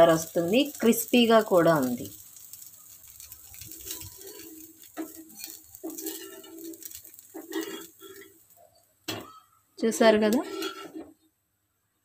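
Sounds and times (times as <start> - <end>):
faint sizzling on a hot pan: 0.0 - 12.0
metal spatula scraping and tapping: 2.4 - 9.5, 10.3 - 11.2.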